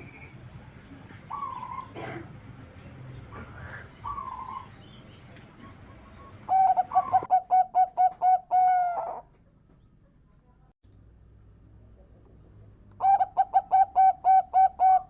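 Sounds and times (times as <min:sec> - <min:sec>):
dove cooing: 0:00.9 - 0:09.3, 0:13.0 - 0:15.0.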